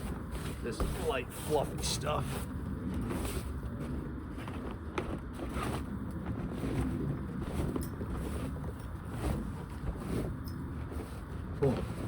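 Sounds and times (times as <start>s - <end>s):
broom sweeping snow: 0.3s - 2.6s.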